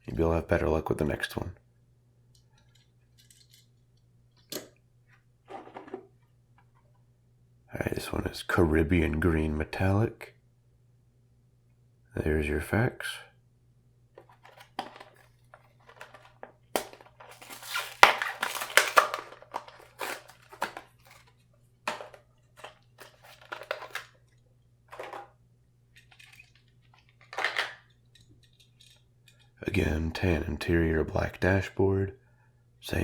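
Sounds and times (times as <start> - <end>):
faint steady hum: 0.0 - 33.0
plastic packaging crinkling: 14.3 - 24.2, 26.0 - 27.8.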